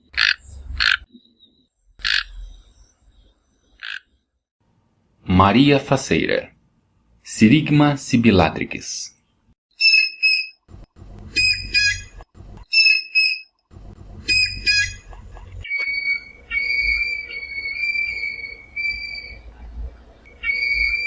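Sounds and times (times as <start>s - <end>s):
heron calling with high whistles: 15.7s - 19.4s, 20.3s - 21.0s.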